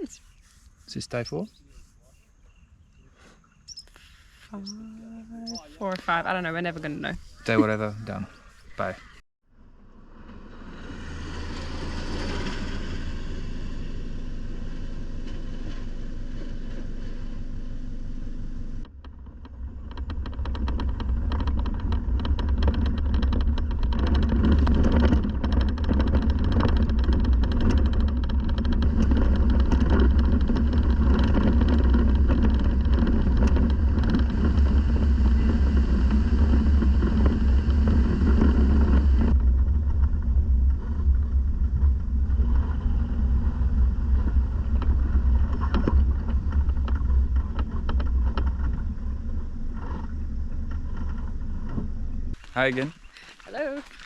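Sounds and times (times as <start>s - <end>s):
vehicle engine and tyres rumbling: 0.0s - 54.0s
constant rattling: 18.8s - 54.0s.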